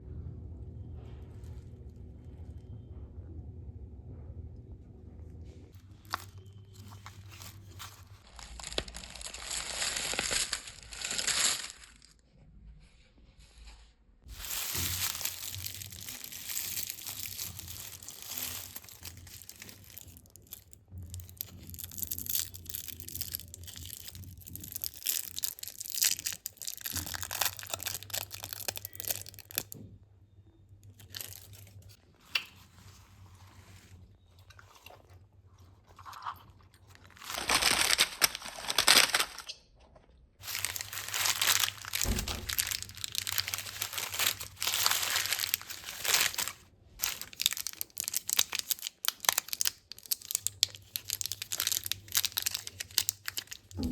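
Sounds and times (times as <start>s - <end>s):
candy wrappers crinkling: 5.9s - 12.2s, 14.3s - 29.9s, 30.8s - 32.7s, 35.8s - 39.5s, 40.4s - 53.9s.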